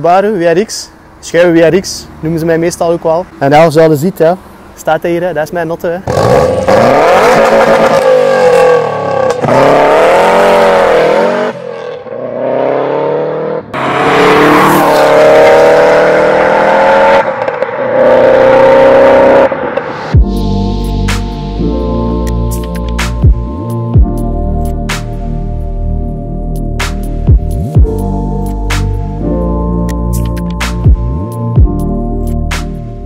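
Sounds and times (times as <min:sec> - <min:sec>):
car engine revving hard: 0:06.0 - 0:19.9.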